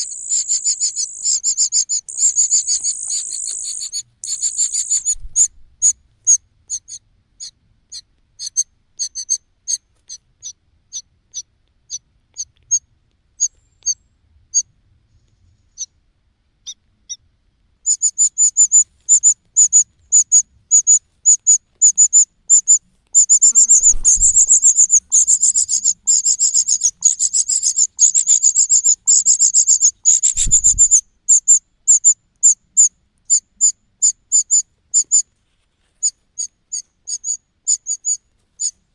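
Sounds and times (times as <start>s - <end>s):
bird chick high-pitched cheeps: 0.0s - 12.8s, 17.9s - 32.6s
low thumps: 23.5s - 24.7s.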